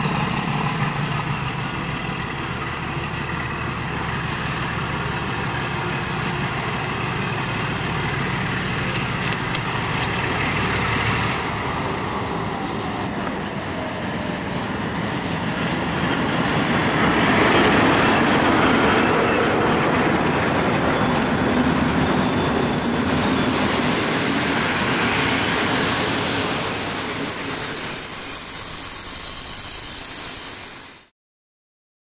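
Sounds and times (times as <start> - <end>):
diesel locomotive engines: 0.0 - 31.1
train coaches rolling past: 0.0 - 31.1
high-pitched squeals from train wheels: 11.0 - 31.2.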